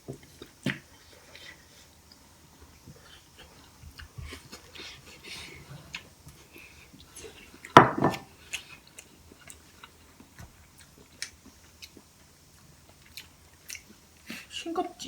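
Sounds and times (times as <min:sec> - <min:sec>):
quiet chewing: 0:00.2 - 0:14.6.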